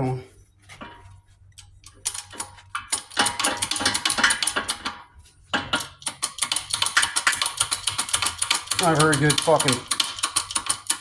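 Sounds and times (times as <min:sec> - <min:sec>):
metal tools clicking and rattling: 0:01.6 - 0:05.0, 0:05.7 - 0:11.0.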